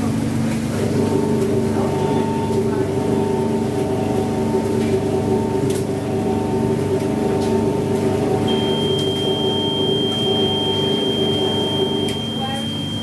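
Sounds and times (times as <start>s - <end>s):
washing machine hum: 0.0s - 13.0s
high thin tone: 8.5s - 13.0s.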